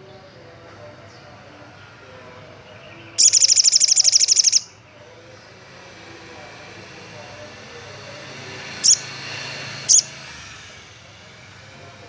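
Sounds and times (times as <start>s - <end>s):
bird high rapid trill: 3.2s - 4.8s, 8.8s - 9.2s, 9.8s - 10.2s.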